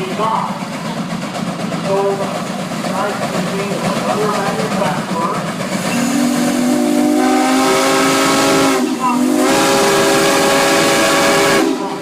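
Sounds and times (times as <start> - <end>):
steam hiss: 3.4 - 12.0
steam whistle blasts: 6.0 - 12.0.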